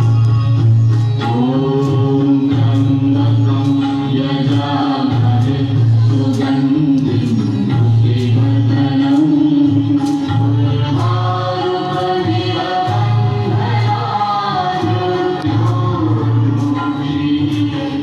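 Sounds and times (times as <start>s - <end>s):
sharp percussive strikes: 0.0s - 18.0s.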